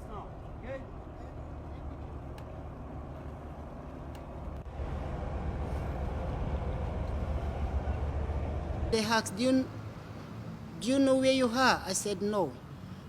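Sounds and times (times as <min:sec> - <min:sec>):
boat engine rumbling: 0:00.0 - 0:09.6.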